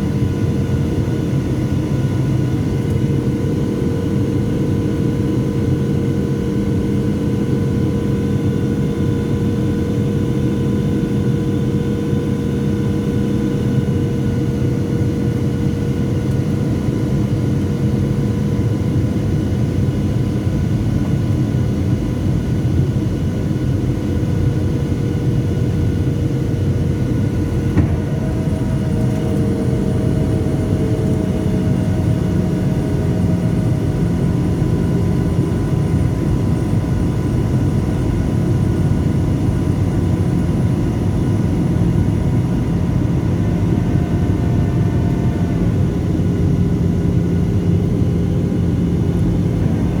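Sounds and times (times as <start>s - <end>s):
airplane cabin engine rumble: 0.0s - 50.0s
steady engine tones: 27.8s - 32.4s.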